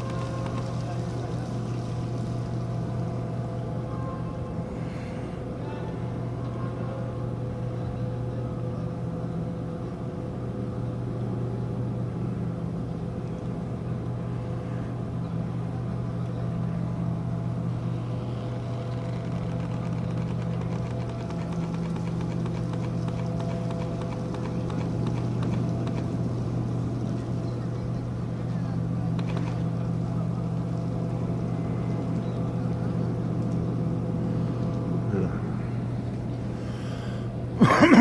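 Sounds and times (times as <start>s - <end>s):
ship engines droning: 0.0s - 38.0s.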